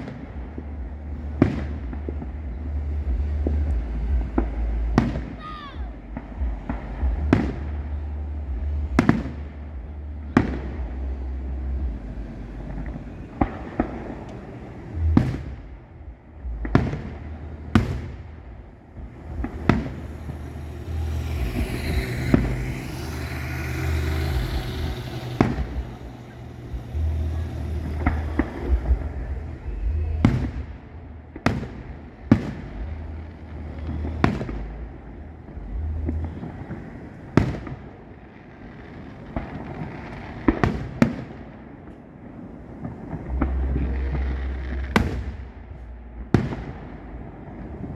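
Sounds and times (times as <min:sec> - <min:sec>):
fireworks booms: 0:00.0 - 0:47.9
low rumble: 0:00.0 - 0:47.9
crackling hiss of crackle shells: 0:19.1 - 0:29.2.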